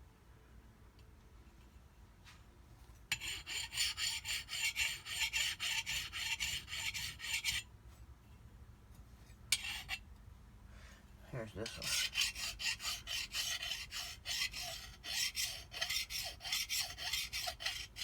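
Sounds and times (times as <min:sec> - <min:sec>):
hand file rasping on metal: 0:03.1 - 0:07.6, 0:09.5 - 0:10.0, 0:11.5 - 0:18.0.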